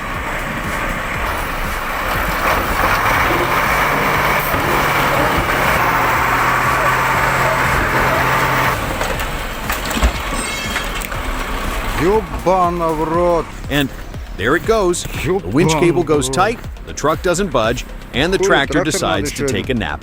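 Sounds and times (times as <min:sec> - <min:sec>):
heavy vehicle engine under load: 0:00.0 - 0:20.0.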